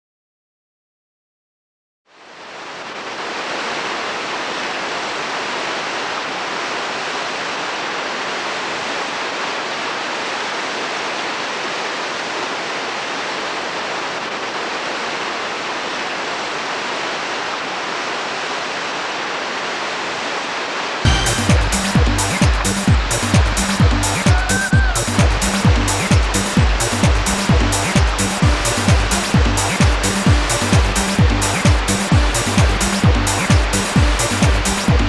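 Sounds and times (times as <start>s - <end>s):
whitewater rushing: 2.1s - 35.0s.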